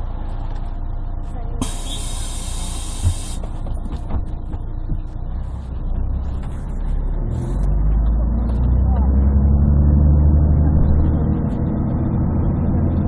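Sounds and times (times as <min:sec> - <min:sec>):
bus diesel engine running: 0:00.0 - 0:13.0
compressed air hiss: 0:01.6 - 0:03.5
knocks from bus body: 0:03.0 - 0:05.1.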